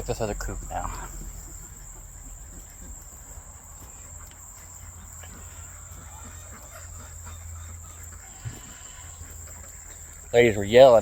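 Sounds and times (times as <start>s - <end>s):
low rumble on microphone: 0.0s - 5.8s
high-pitched insect chorus: 0.0s - 11.0s.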